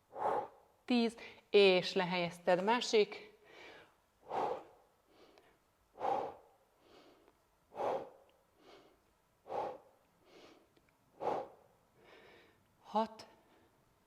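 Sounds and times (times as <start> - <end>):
soft inhalations: 3.4 - 12.8.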